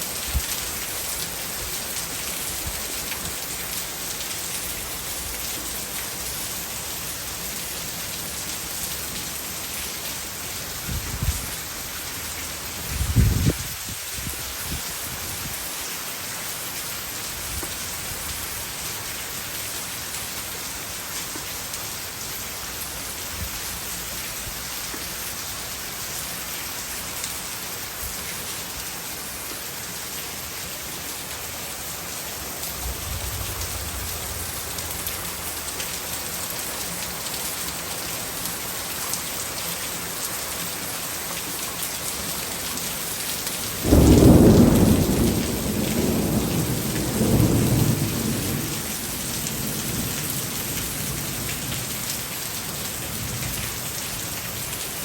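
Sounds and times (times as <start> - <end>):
heavy rain falling: 0.0 - 55.0
thunder rumble: 32.6 - 36.3, 43.8 - 48.8.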